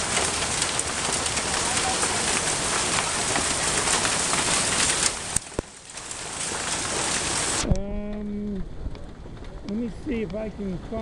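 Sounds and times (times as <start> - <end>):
hail and rain pelting down: 0.0 - 11.0
person's held voice: 7.7 - 8.7.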